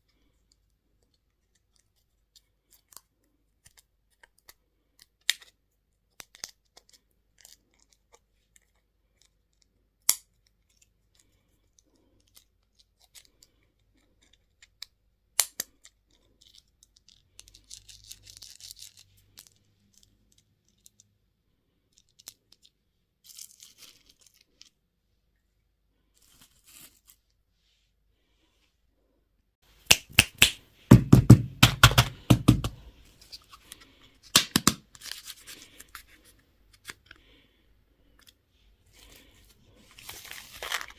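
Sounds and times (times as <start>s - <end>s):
wrappers crinkling and tearing: 39.1s - 40.9s.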